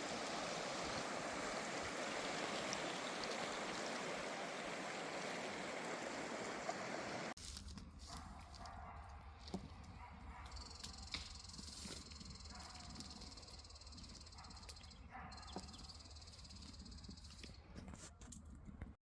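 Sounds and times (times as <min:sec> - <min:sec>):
river water rushing: 0:00.0 - 0:07.4.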